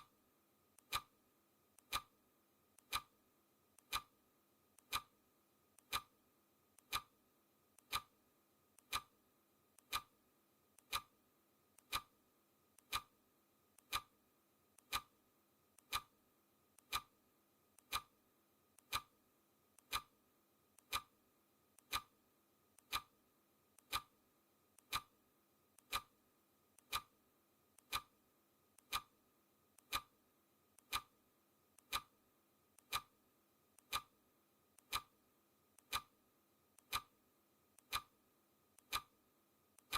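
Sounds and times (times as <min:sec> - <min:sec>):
clock ticking: 0:00.8 - 0:01.2, 0:01.8 - 0:02.2, 0:02.8 - 0:03.2, 0:03.8 - 0:04.2, 0:04.8 - 0:05.2, 0:05.8 - 0:06.2, 0:06.8 - 0:07.1, 0:07.8 - 0:08.2, 0:08.8 - 0:09.2, 0:09.8 - 0:10.1, 0:10.8 - 0:11.2, 0:11.8 - 0:12.2, 0:12.8 - 0:13.2, 0:13.8 - 0:14.2, 0:14.8 - 0:15.2, 0:15.8 - 0:16.2, 0:16.8 - 0:17.2, 0:17.8 - 0:18.2, 0:18.8 - 0:19.2, 0:19.8 - 0:20.2, 0:20.8 - 0:21.2, 0:21.8 - 0:22.2, 0:22.8 - 0:23.2, 0:23.8 - 0:24.2, 0:24.8 - 0:25.2, 0:25.8 - 0:26.2, 0:26.8 - 0:27.2, 0:27.8 - 0:28.2, 0:28.8 - 0:29.2, 0:29.8 - 0:30.2, 0:30.8 - 0:31.2, 0:31.8 - 0:32.2, 0:32.8 - 0:33.2, 0:33.8 - 0:34.2, 0:34.8 - 0:35.2, 0:35.8 - 0:36.2, 0:36.8 - 0:37.2, 0:37.8 - 0:38.2, 0:38.8 - 0:39.2.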